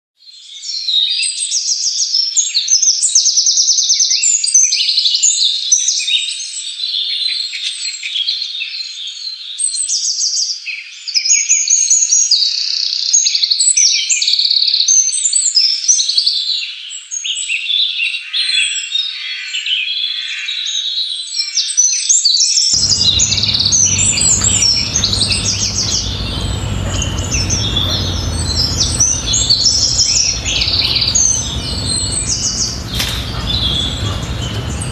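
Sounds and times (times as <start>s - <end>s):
low background rumble: 22.8s - 34.9s
songbirds chirping and trilling: 22.8s - 34.9s.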